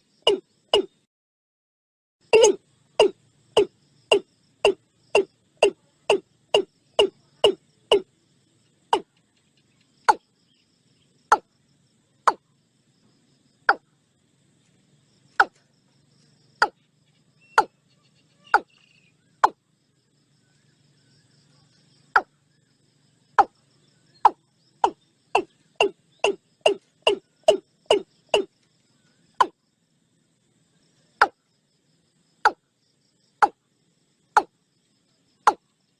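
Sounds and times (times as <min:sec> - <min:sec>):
watercock calling: 0:02.3 - 0:08.1, 0:24.2 - 0:28.5.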